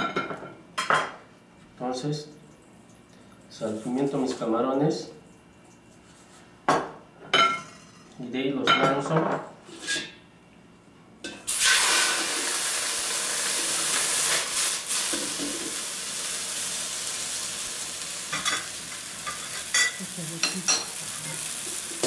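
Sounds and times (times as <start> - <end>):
shrimp sizzling in a hot pan: 11.5 - 22.0.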